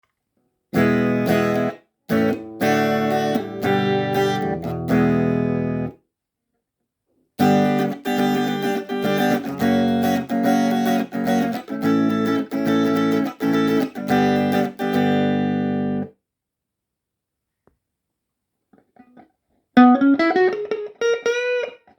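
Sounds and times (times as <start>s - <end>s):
electric guitar chords strummed: 0.8s - 5.9s, 7.4s - 16.1s.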